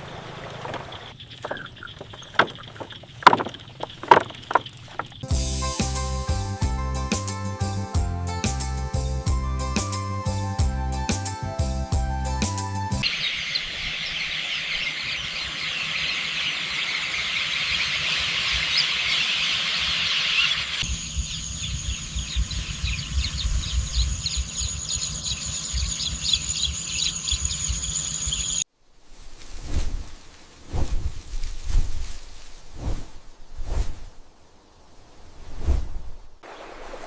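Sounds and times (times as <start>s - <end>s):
chorus of high rapid chirping: 13.0s - 28.6s.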